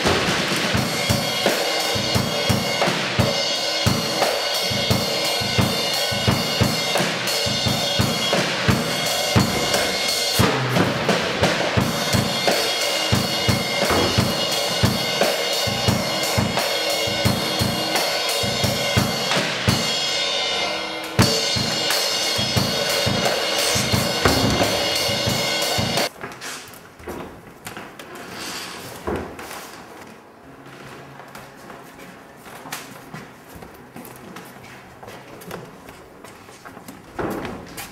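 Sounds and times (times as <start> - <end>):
snare drum strokes: 0.0 - 20.0, 20.6 - 26.1
bass drum strokes: 0.0 - 26.1
cymbals washing: 0.0 - 26.1.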